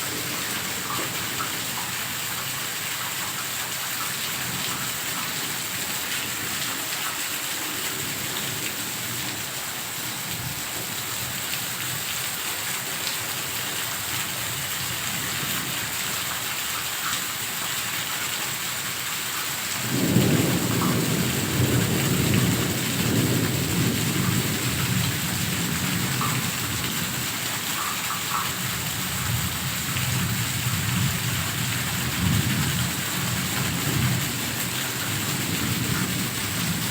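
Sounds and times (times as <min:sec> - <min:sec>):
heavy rain falling: 0:00.0 - 0:36.9
thunder crack and rumble: 0:19.8 - 0:27.2, 0:29.2 - 0:36.9.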